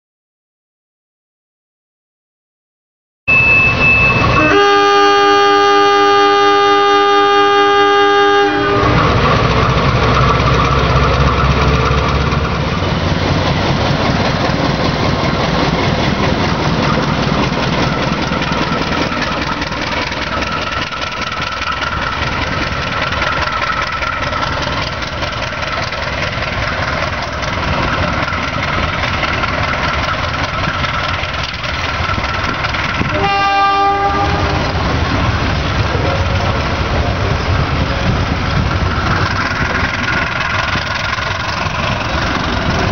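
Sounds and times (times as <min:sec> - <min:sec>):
train coaches rumbling on rails: 0:03.3 - 0:42.9
train horn blast: 0:04.2 - 0:09.2, 0:33.0 - 0:34.9.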